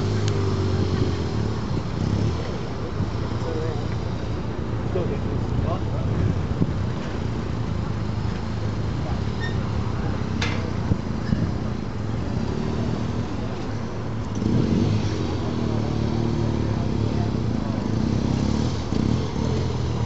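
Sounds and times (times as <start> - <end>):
motorcycle engine revving: 0.0 - 3.6, 12.2 - 13.6, 14.2 - 20.0.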